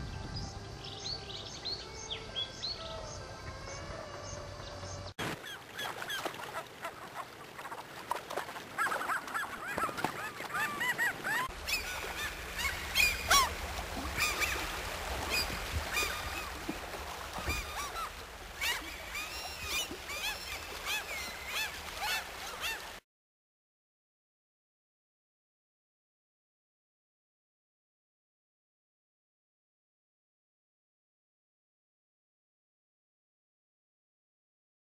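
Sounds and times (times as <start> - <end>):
birds calling: 0.4 - 23.0.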